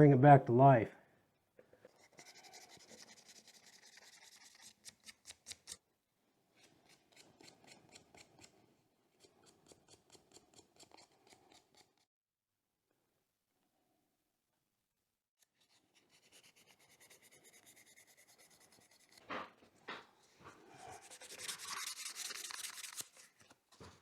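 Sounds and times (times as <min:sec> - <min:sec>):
scrubbing a knife: 0:01.8 - 0:05.8, 0:06.6 - 0:12.0, 0:15.5 - 0:23.5.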